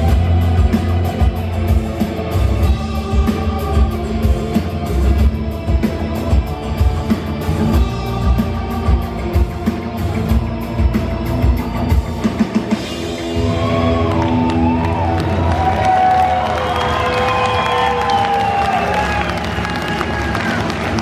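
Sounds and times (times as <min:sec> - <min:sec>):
live rock band playing: 0:00.0 - 0:16.1
drum kit: 0:00.0 - 0:19.1.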